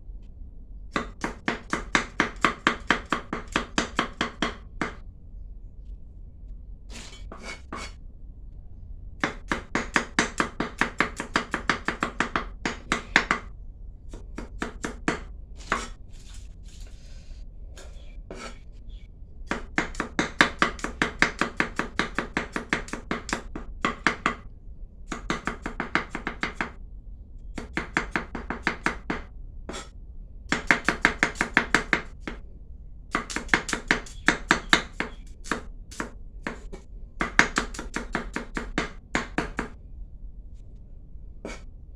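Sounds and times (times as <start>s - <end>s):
knife chopping on cutting board: 1.0s - 5.0s, 7.0s - 8.0s, 9.2s - 13.5s, 14.1s - 16.0s, 17.8s - 18.6s, 19.5s - 24.4s, 25.1s - 26.8s, 27.6s - 29.9s, 30.5s - 32.4s, 33.1s - 39.8s.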